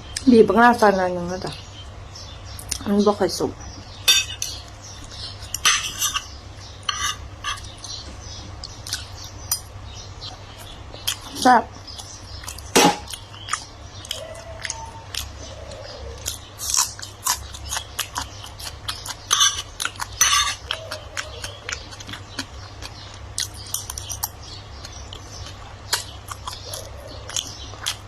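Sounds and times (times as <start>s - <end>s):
person chewing food: 4.1s - 28.0s.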